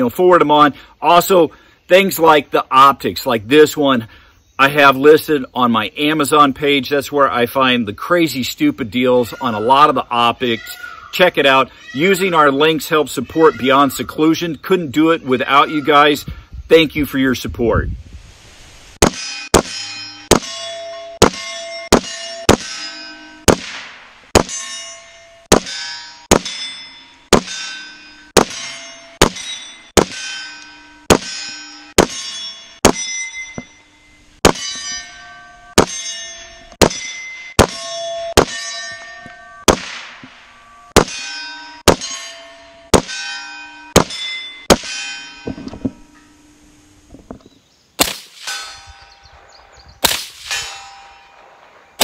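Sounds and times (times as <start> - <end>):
metallic ring of steel targets: 19.0 - 46.8, 48.0 - 52.0
gunshots: 23.5 - 24.6, 28.4 - 30.2, 39.7 - 40.2, 48.0 - 48.7, 50.0 - 50.9.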